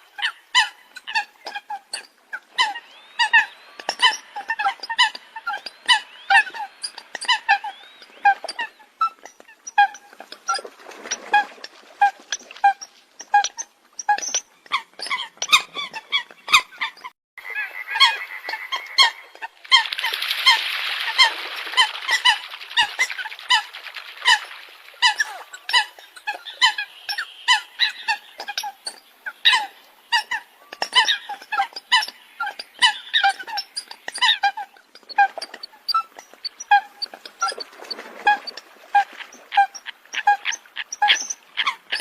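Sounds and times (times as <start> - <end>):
birds honking calls: 16.4 - 20.5.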